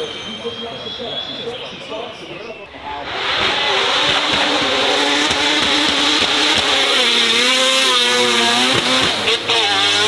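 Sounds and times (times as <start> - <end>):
racing car engine at high revs: 2.8 - 10.0.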